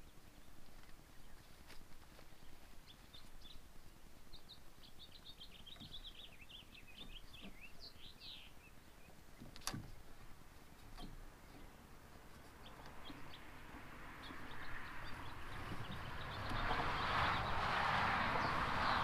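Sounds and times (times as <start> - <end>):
songbird twittering: 2.4 - 9.7, 12.4 - 17.7.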